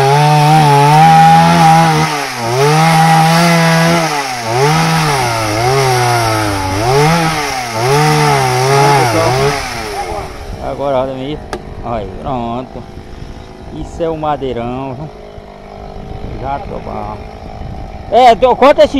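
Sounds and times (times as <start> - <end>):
chainsaw cutting through log: 0.0 - 10.7, 14.6 - 18.4.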